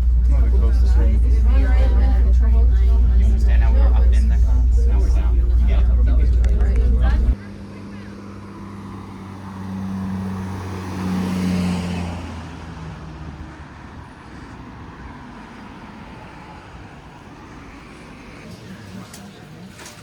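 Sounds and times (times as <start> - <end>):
background rumble: 0.0 - 7.4
passing vehicle motor hum: 0.0 - 19.4.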